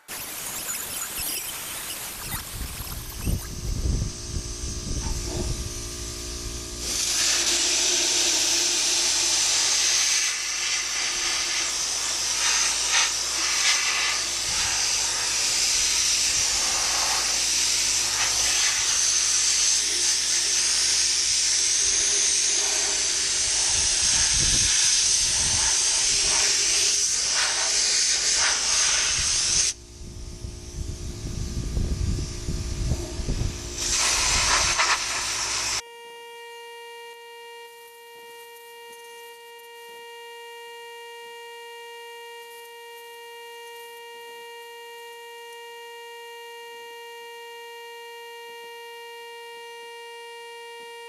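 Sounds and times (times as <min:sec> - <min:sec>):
pressurised spray hiss: 0:00.0 - 0:04.0, 0:06.8 - 0:29.8, 0:32.8 - 0:35.8.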